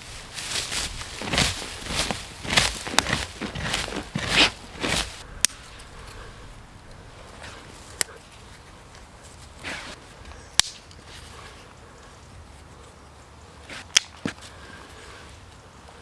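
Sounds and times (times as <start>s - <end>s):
rustling through leaf litter: 0.0s - 10.2s
sharp cracks: 1.1s - 6.2s, 10.6s - 10.8s.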